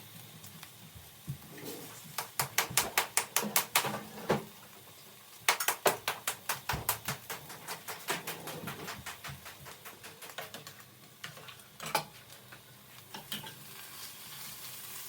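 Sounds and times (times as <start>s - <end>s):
rapid sharp taps: 2.2s - 3.9s, 5.5s - 10.8s
loud knock: 5.8s - 10.1s.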